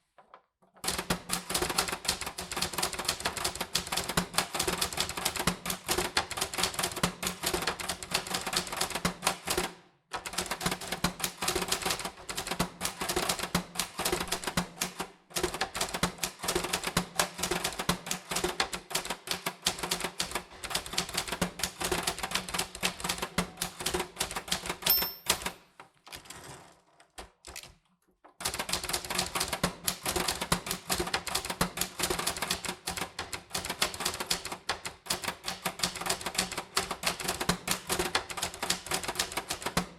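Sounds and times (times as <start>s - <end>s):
typewriter keys striking: 0.8s - 25.6s, 28.4s - 39.9s
typewriter bell ding: 24.8s - 25.6s.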